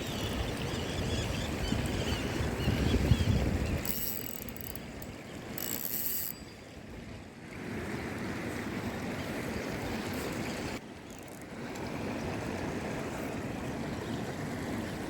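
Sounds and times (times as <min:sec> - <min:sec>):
wind on microphone: 0:00.0 - 0:03.9
water: 0:00.0 - 0:15.0.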